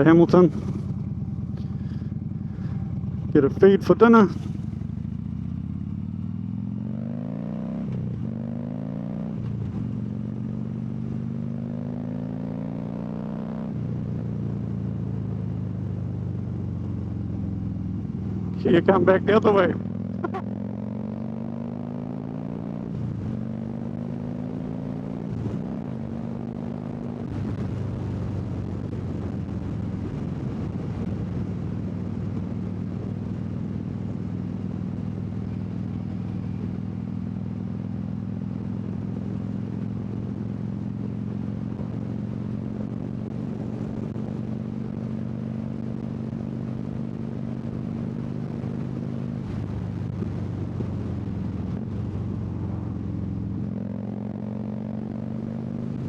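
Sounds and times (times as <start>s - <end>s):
motorcycle engine shifting gears: 0.0s - 56.0s
wind noise: 25.1s - 36.8s, 38.7s - 56.0s.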